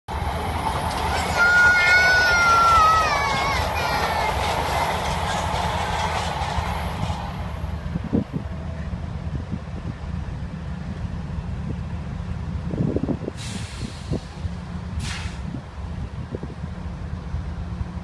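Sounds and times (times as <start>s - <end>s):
train wheel squeal: 0.1s - 8.9s
diesel locomotives rumbling: 0.1s - 18.0s
rail and wheel noise: 0.1s - 18.0s.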